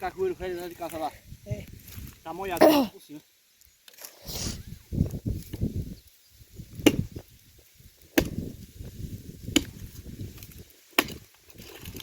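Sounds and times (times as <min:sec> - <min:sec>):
branches rustling: 0:00.0 - 0:12.0
blade chopping wood: 0:06.7 - 0:07.2, 0:08.1 - 0:08.5, 0:09.4 - 0:09.8, 0:10.4 - 0:11.4.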